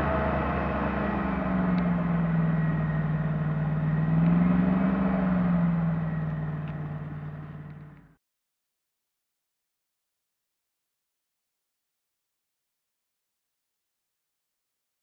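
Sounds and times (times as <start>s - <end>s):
airboat engine and propeller drone: 0.0s - 8.1s.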